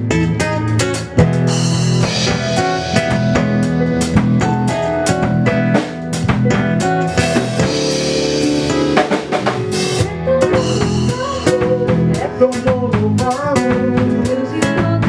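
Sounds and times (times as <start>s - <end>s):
guitar: 0.0s - 15.0s
drum kit kick and rimshot hits: 0.4s - 14.2s
sustained pitched instruments: 1.3s - 6.2s.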